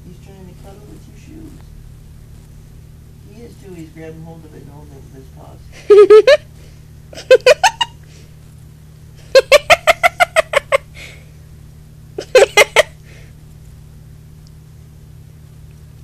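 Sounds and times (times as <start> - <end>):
steady low hum: 0.0 - 16.0
person laughing high-pitched: 5.8 - 6.4, 7.2 - 8.0, 9.2 - 10.9, 12.2 - 13.0.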